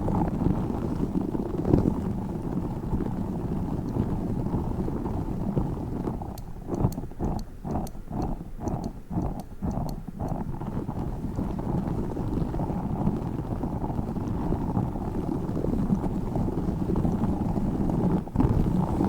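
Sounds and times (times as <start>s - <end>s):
faint sharp clicks: 6.3s - 10.4s.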